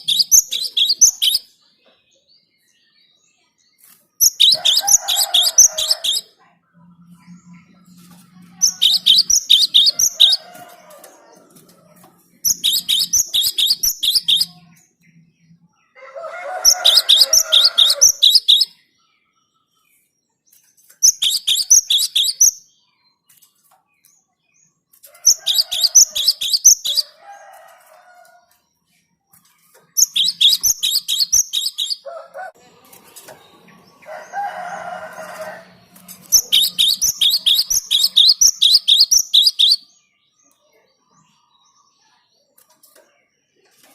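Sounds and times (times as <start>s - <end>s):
bird rapid high chirps: 0.0s - 1.5s, 4.2s - 6.3s, 8.5s - 10.8s, 12.4s - 14.8s, 16.6s - 18.9s, 21.0s - 22.7s, 25.3s - 27.2s, 30.0s - 32.1s, 36.0s - 40.0s.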